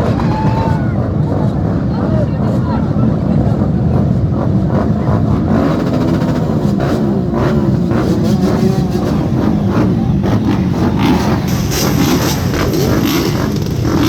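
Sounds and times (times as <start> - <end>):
motorcycle engines rumbling: 0.0 - 14.0.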